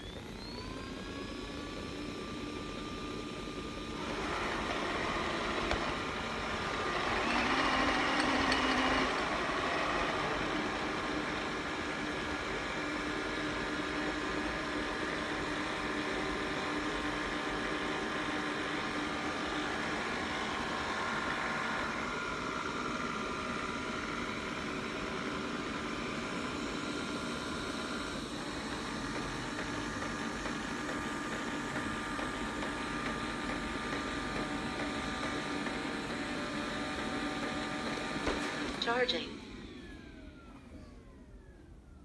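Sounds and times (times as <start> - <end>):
robot vacuum motor whirring: 3.6 - 15.6.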